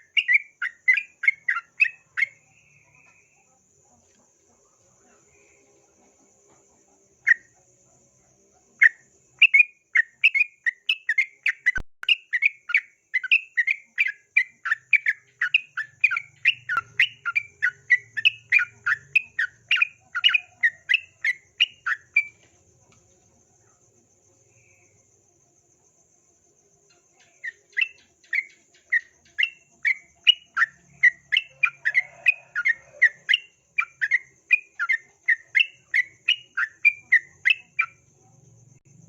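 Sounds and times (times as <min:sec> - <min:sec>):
faint high insect trill: 0:00.0 - 0:39.0
bulbul singing chattering notes: 0:08.8 - 0:22.4.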